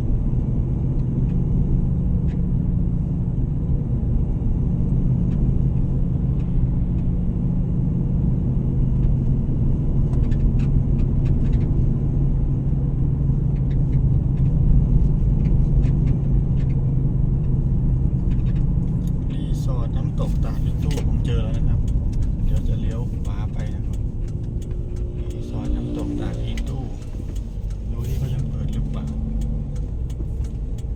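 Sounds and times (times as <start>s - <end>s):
car engine and road noise: 0.0s - 30.9s.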